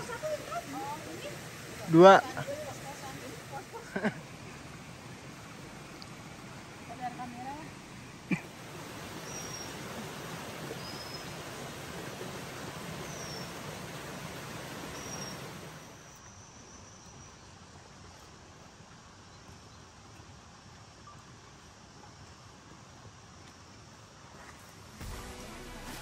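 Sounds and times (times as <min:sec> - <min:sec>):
bird chirps: 0:09.2 - 0:09.9, 0:10.8 - 0:11.4, 0:13.0 - 0:13.6, 0:14.9 - 0:17.4.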